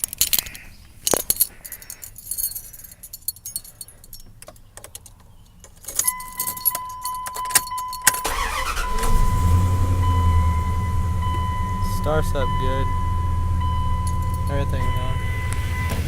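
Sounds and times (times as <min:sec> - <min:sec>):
keys jangling: 0:00.0 - 0:08.8, 0:13.9 - 0:14.9
engine cranking and starting: 0:04.3 - 0:16.0
electronic warning tone: 0:06.1 - 0:16.0.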